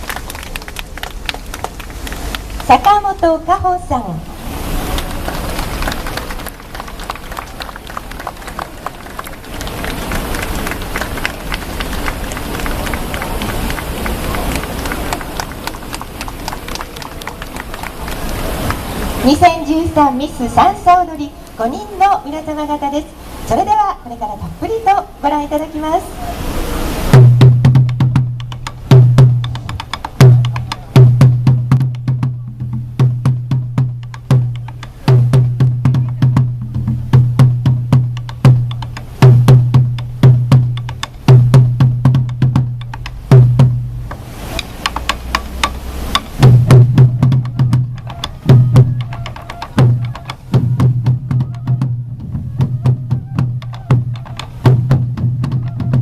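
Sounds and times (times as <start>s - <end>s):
taiko drums in fast rhythm: 27.1s - 56.0s
sharp wooden clicks: 28.4s - 30.9s, 42.3s - 43.3s, 44.1s - 46.4s, 47.4s - 50.6s, 53.6s - 54.7s.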